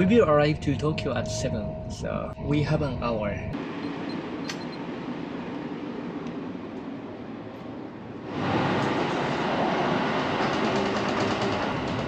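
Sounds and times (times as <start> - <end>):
train rumble and hiss: 3.6 - 12.0.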